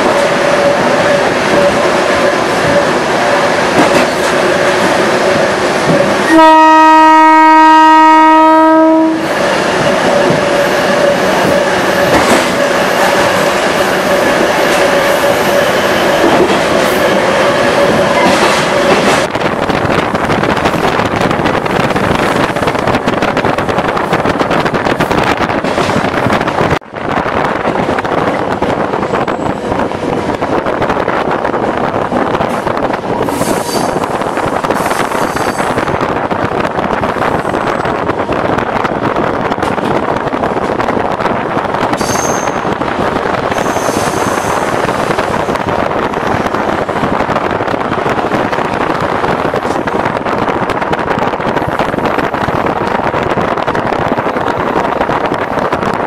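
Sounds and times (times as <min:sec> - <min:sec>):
high-pitched squeals: 0:00.0 - 0:06.3, 0:09.2 - 0:19.3
train running on rails: 0:00.0 - 0:56.0.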